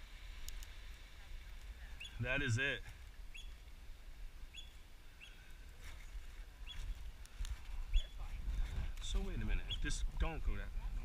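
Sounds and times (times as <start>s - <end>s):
small bird chirping: 1.9s - 2.2s, 3.3s - 3.7s, 4.5s - 5.5s, 6.6s - 7.0s, 7.8s - 8.4s, 9.5s - 10.0s
wind rumble on microphone: 5.7s - 11.0s.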